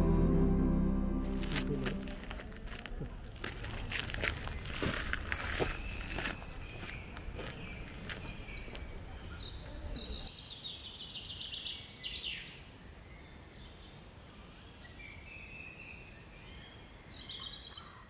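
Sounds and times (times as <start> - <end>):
low outdoor rumble: 0.0 - 5.3
birds chirping and trilling: 4.2 - 18.0.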